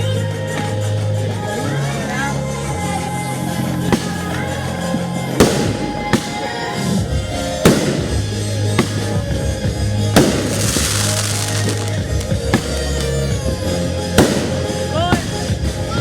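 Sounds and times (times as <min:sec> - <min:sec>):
music: 0:00.0 - 0:16.0
fireworks bangs: 0:05.4 - 0:07.0, 0:07.6 - 0:09.3, 0:10.2 - 0:15.7
fireworks crackling hiss: 0:05.4 - 0:09.3, 0:10.1 - 0:16.0.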